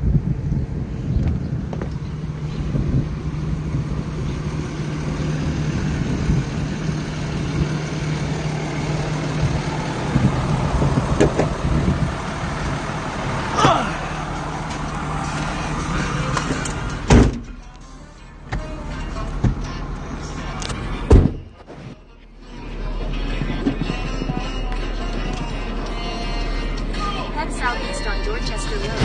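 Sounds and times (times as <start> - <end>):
truck engine and road noise: 0.0 - 29.0.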